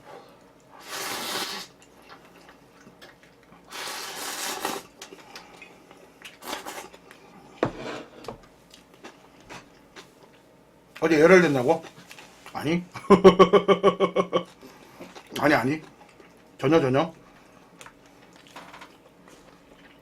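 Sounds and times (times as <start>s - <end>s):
noodles being slurped: 0.8s - 2.5s, 3.6s - 5.2s, 6.3s - 7.0s
chewing: 15.0s - 16.5s, 17.4s - 20.0s.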